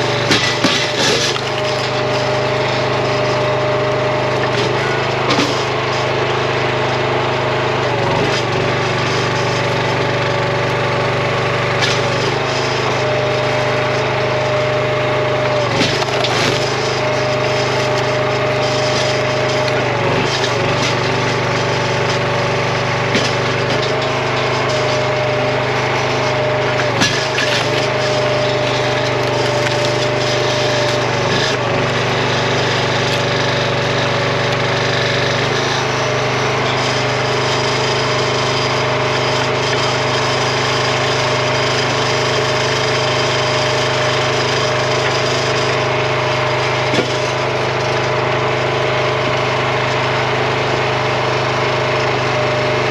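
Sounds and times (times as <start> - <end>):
log splitter engine running: 0.0 - 52.9
wood splitting cracks: 0.1 - 3.2, 15.5 - 32.0, 46.8 - 48.1.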